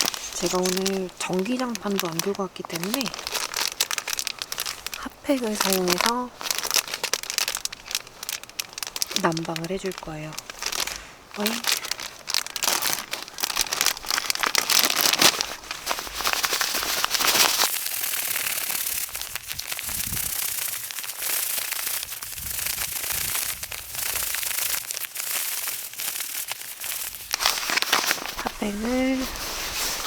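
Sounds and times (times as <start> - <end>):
plastic wrappers crinkling: 0.0 - 30.0.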